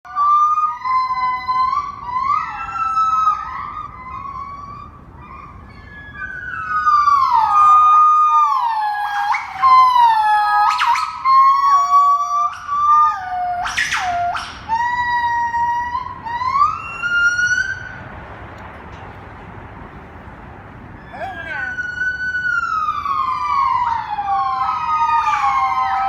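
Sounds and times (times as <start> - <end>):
gibbon whooping hoots: 5.2 - 17.4.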